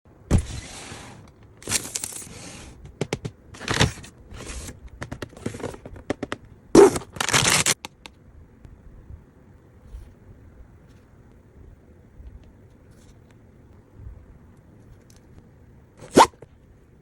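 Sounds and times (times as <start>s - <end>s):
packaging clicks and snaps: 5.0s - 8.1s
packaging crinkling and rustling: 6.8s - 7.8s.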